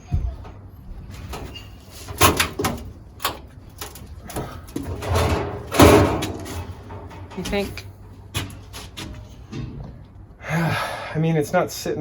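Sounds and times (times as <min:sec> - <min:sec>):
loud window clatter: 0:01.1 - 0:09.8.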